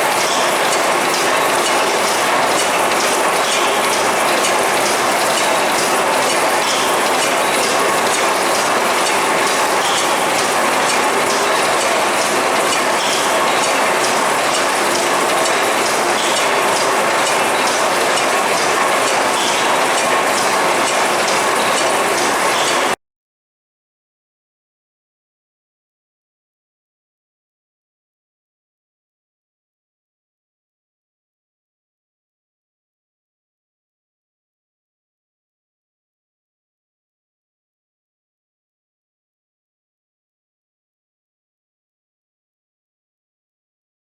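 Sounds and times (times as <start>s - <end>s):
steam engine running: 0.0s - 23.0s.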